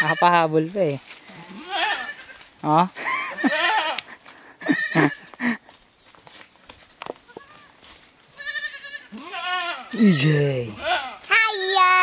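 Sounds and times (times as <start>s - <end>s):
goat kids bleating: 0.0s - 0.5s, 1.3s - 2.5s, 3.1s - 5.4s, 7.3s - 7.8s, 8.4s - 12.0s.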